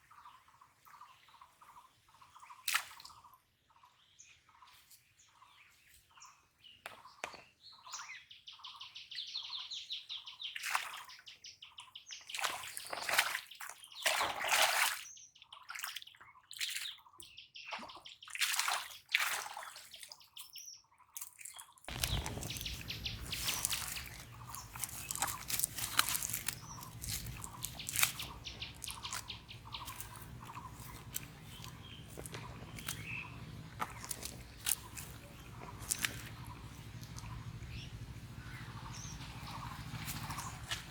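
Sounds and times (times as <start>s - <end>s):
birds chirping and trilling: 0.0s - 14.2s, 19.9s - 40.9s
small clicks and splashes: 2.6s - 3.3s, 10.5s - 11.2s, 12.2s - 15.0s, 15.6s - 40.9s
steady low rumble: 21.9s - 40.9s.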